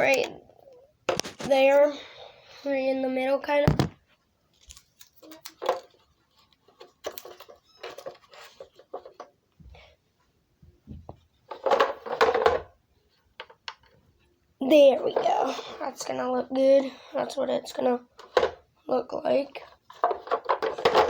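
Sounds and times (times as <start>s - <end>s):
tape crackling: 3.6s - 9.2s
plastic handling clicks and rustles: 3.7s - 9.5s, 11.0s - 14.0s, 17.7s - 18.7s, 19.6s - 21.0s.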